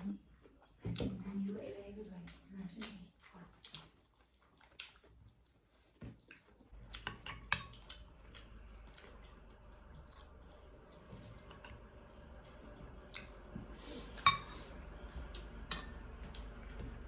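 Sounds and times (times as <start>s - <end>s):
low steady hum: 6.7s - 17.0s
cutlery clinking on plates: 14.2s - 14.5s, 15.7s - 16.0s.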